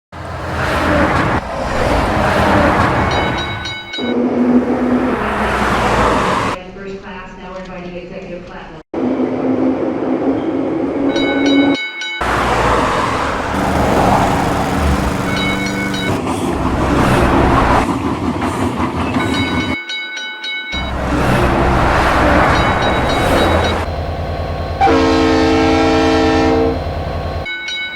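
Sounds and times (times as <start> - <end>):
train rumbling: 0.1 - 6.6, 9.0 - 19.8, 20.8 - 27.9
high ringing tones: 3.0 - 4.2, 15.0 - 16.2, 22.5 - 25.5, 26.2 - 27.9
train horn blasts: 22.6 - 27.5.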